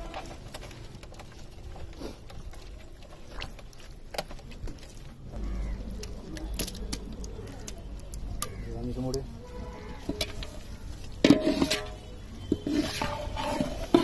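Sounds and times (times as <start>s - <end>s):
birds calling: 5.2s - 6.2s, 7.2s - 14.0s.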